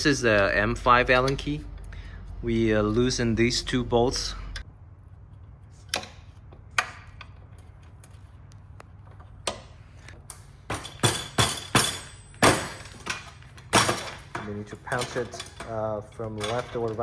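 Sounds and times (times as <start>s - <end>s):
metallic tool clinks and knocks: 10.7s - 17.0s.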